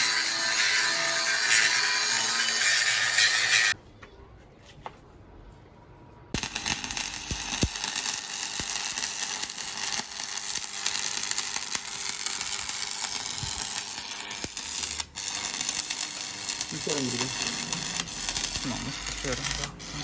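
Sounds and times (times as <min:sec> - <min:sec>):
welding arc crackling sizzle: 0:00.0 - 0:03.8, 0:06.4 - 0:20.0.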